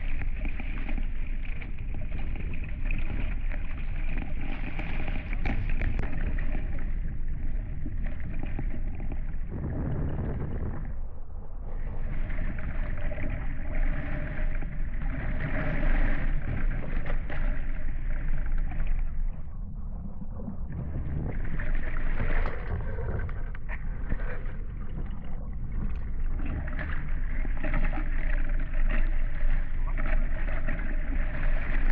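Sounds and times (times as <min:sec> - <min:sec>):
water rushing along boat hulls: 0:00.0 - 0:19.7, 0:20.6 - 0:31.9
wind noise: 0:08.0 - 0:13.3.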